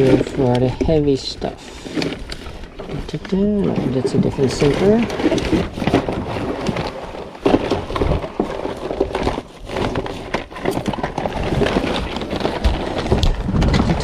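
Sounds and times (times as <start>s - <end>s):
clicks and knocks of gear: 0.0s - 14.0s
rummaging through fishing tackle bag: 0.0s - 14.0s.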